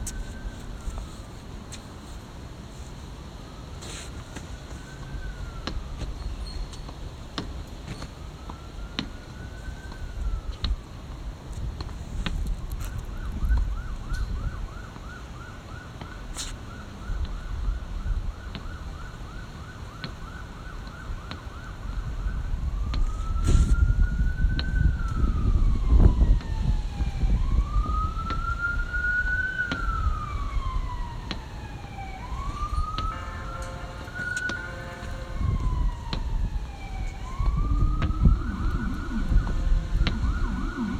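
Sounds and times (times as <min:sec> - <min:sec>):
electronic siren: 0:04.7 - 0:06.8, 0:07.9 - 0:10.8, 0:12.6 - 0:40.9
low rumble: 0:35.4 - 0:40.9.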